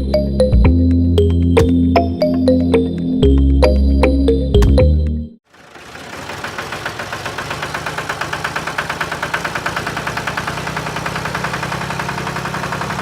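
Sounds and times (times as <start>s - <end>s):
small engine running: 5.4s - 13.0s.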